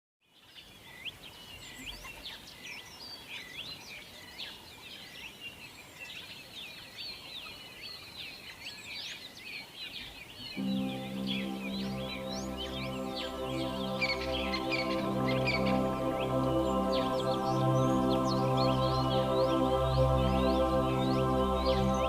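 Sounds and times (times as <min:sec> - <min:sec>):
music with sustained chords: 0:10.4 - 0:22.0.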